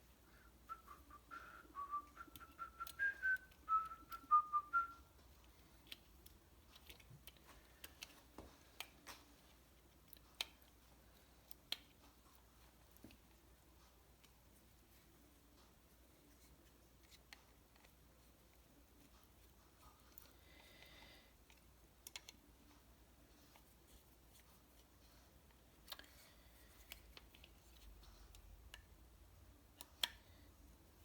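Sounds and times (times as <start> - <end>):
man whistling a tune: 0.7 - 5.1
light clicks and taps: 5.1 - 31.0.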